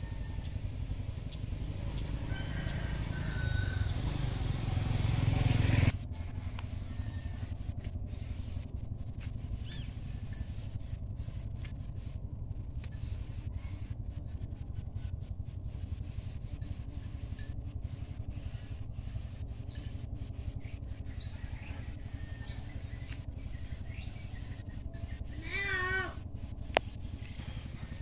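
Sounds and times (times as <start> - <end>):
small birds chirping: 0.0 - 28.0
steady low rumble: 0.0 - 28.0
wavering meow-like animal call: 25.4 - 26.2.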